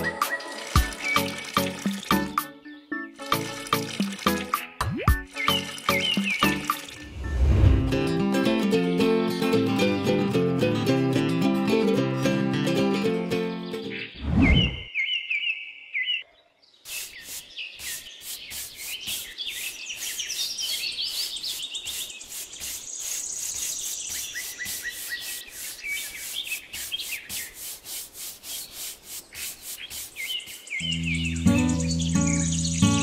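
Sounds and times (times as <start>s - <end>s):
birds chirping: 0.0s - 7.7s, 13.5s - 27.7s, 28.4s - 33.0s
music: 0.0s - 14.0s, 30.8s - 33.0s
paintbrush scrubbing cement: 16.9s - 30.8s.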